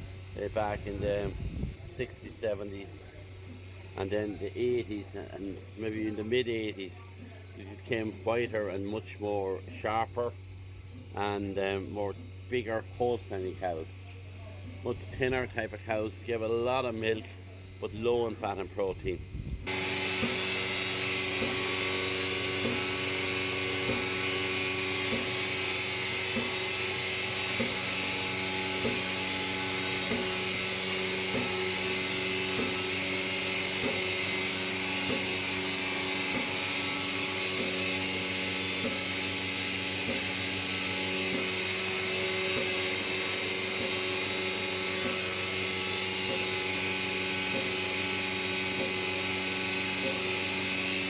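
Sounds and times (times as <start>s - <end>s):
milking machine motor hum: 0.0s - 51.0s
regular machine clicks: 19.7s - 51.0s.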